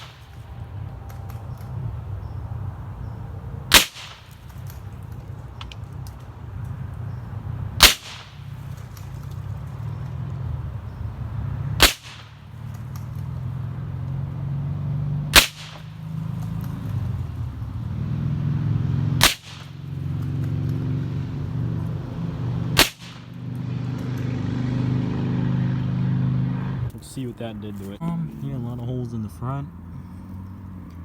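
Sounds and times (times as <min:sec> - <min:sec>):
rifle shots: 0:00.0 - 0:00.4, 0:03.7 - 0:04.9, 0:07.8 - 0:09.2, 0:11.8 - 0:12.7, 0:15.3 - 0:16.0, 0:19.2 - 0:19.8, 0:22.7 - 0:23.4.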